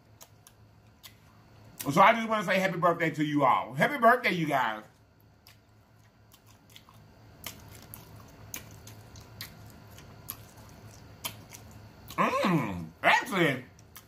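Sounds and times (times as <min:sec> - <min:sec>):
person chewing food: 0:00.0 - 0:01.9, 0:04.9 - 0:13.0, 0:13.7 - 0:14.0.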